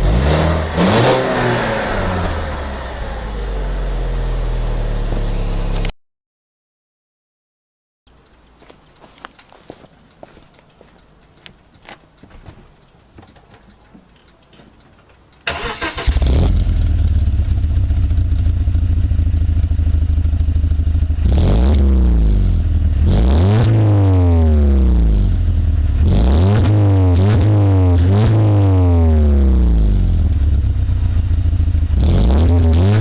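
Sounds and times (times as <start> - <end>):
car engine revving: 0.0 - 5.9, 15.4 - 33.0
car engine starting and idling: 0.0 - 5.9, 12.1 - 26.1, 27.7 - 33.0
faint clicks: 8.1 - 15.5.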